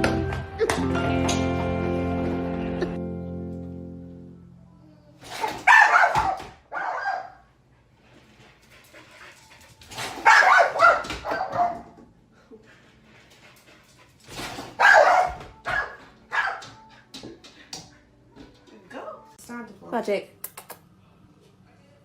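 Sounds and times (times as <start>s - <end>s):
dog barking: 5.4s - 7.5s, 10.1s - 12.0s, 14.8s - 16.9s.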